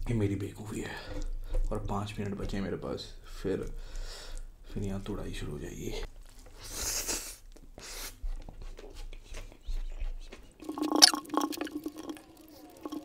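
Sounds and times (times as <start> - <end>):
person chewing with wet clicks: 7.5 - 13.0.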